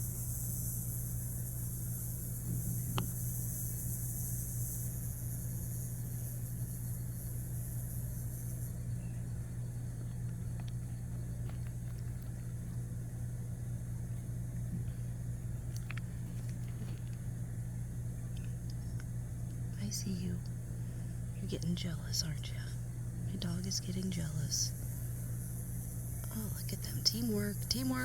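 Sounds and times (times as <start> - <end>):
high hiss: 0.0 - 17.7, 23.4 - 28.0
steady low hum: 0.0 - 28.0.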